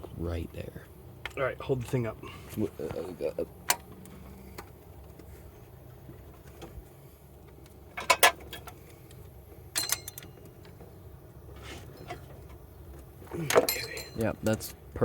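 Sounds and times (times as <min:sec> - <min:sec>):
metal parts clicking and clinking: 0:09.7 - 0:10.4, 0:13.4 - 0:14.6.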